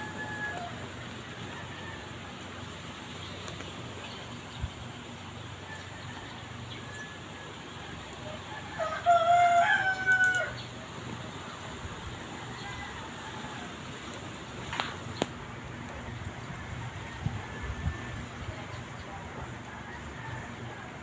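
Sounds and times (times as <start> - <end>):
rooster crowing: 0.0 - 2.5, 8.2 - 10.7, 12.3 - 14.1, 19.7 - 21.0
steady background hiss: 0.0 - 21.0.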